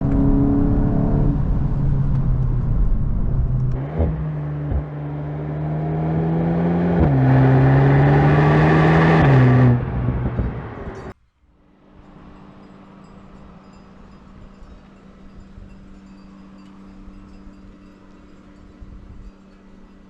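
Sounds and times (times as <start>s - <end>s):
car engine and exhaust: 0.0s - 11.2s.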